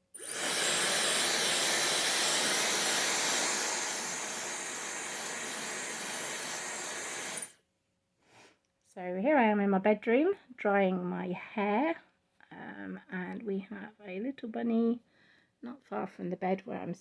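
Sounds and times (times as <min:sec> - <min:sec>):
hairdryer blowing: 0:00.0 - 0:07.5.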